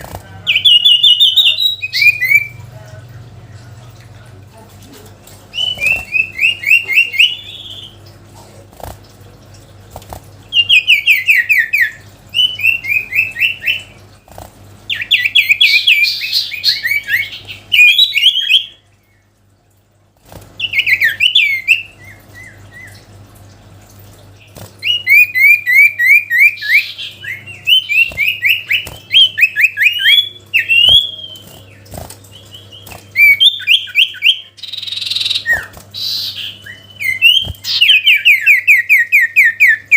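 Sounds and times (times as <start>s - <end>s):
songbird chirping rapidly: 0.0s - 2.6s, 5.5s - 8.0s, 24.8s - 39.9s.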